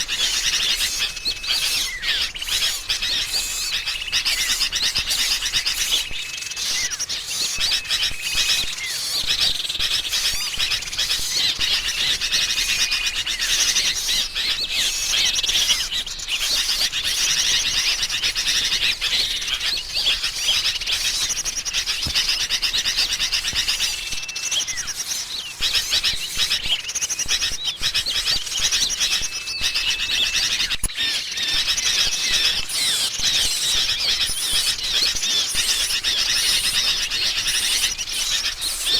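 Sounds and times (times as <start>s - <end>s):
birds chattering and trilling: 0.0s - 38.9s
short level bird whistles: 18.6s - 38.9s.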